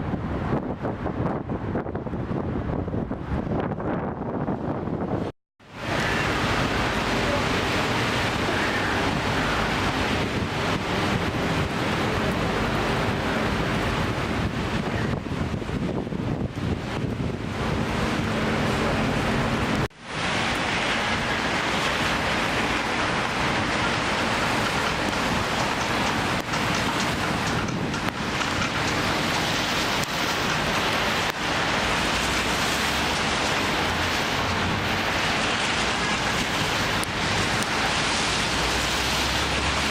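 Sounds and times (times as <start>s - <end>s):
heavy rain pouring: 4.6s - 39.9s.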